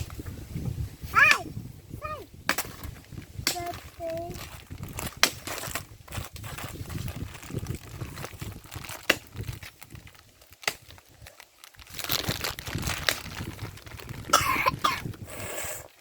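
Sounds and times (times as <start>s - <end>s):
cough-like vocal sound: 14.3s - 15.1s.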